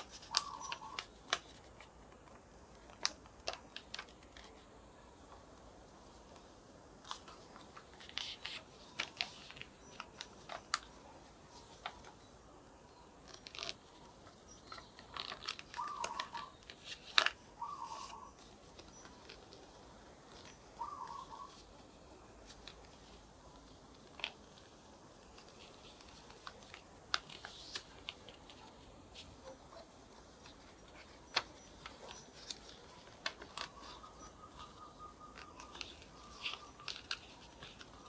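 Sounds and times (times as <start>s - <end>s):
paper squeaks: 0.0s - 1.8s, 13.2s - 19.6s, 25.2s - 38.0s
paper being folded and creased: 0.0s - 38.0s.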